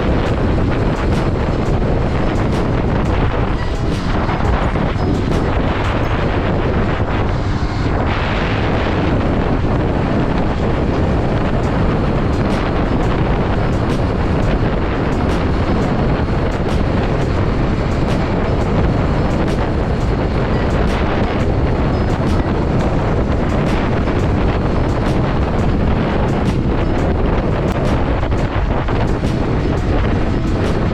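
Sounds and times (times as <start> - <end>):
motorcycle engine: 0.0 - 30.9
road noise: 0.0 - 30.9
wind rushing over microphone: 0.0 - 30.9.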